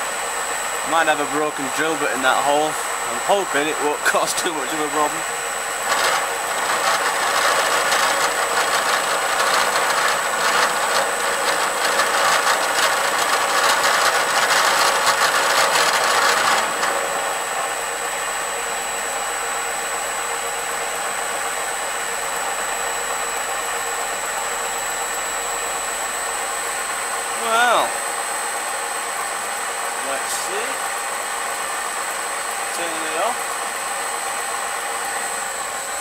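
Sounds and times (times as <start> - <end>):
milling machine cutting steel: 0.0 - 28.7
milling machine humming: 0.0 - 36.0.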